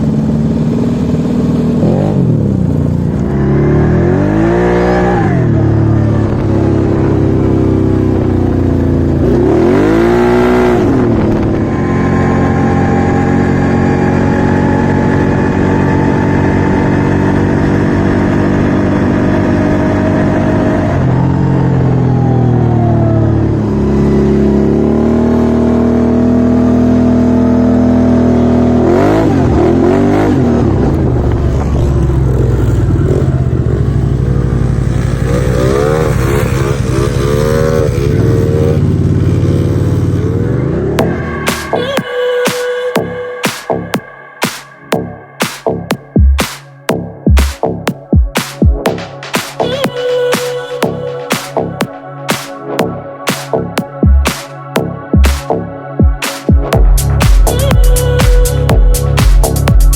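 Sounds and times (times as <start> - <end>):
off-road vehicle engine revving: 0.0 - 41.7.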